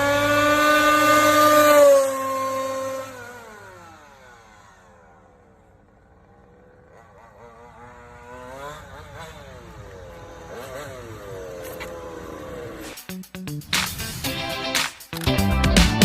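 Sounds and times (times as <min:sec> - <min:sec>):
two-stroke engine revving: 0:00.0 - 0:16.0.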